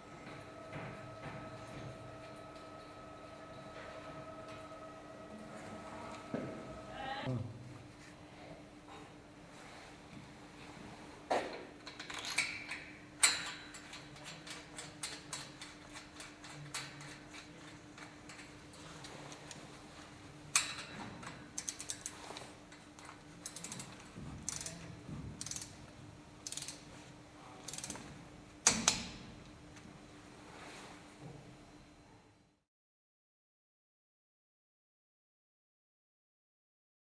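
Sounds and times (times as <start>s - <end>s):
mechanical clicks and clanks: 20.5s - 27.0s, 27.6s - 29.3s
rapid ratchet-like ticking: 24.5s - 24.8s, 25.4s - 25.8s, 26.4s - 26.8s.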